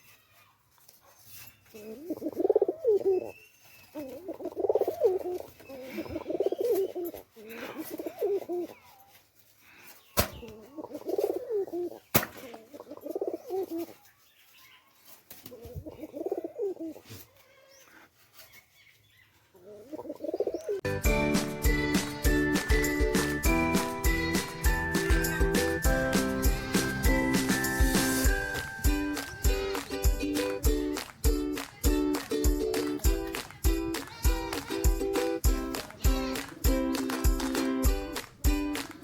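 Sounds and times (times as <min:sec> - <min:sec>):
pigeons cooing: 0:01.7 - 0:08.8, 0:10.3 - 0:13.9, 0:15.5 - 0:17.0, 0:19.6 - 0:20.8
jingly music: 0:20.9 - 0:39.0.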